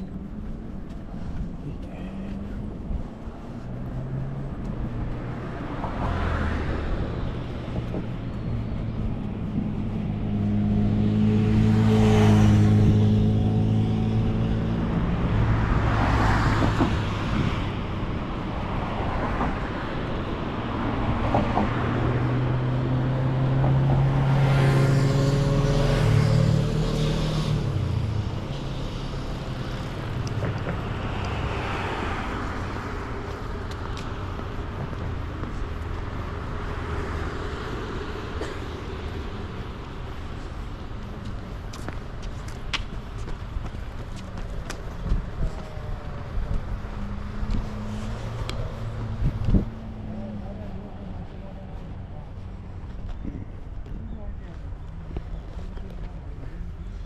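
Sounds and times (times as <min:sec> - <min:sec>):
cars passing close by: 0:00.0 - 0:57.0.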